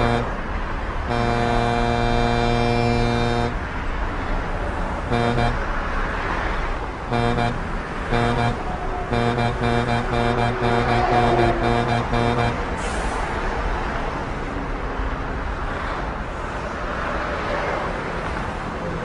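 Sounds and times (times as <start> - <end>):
truck horn: 0.0 - 13.4
road and engine rumble: 0.0 - 19.0.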